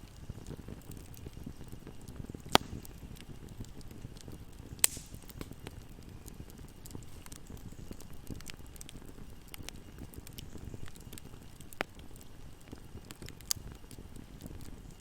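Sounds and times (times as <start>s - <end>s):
fireplace flame rumble: 0.0s - 15.0s
small fire crackles: 0.0s - 15.0s
loud sharp wood pops: 2.5s - 2.8s, 4.8s - 5.5s.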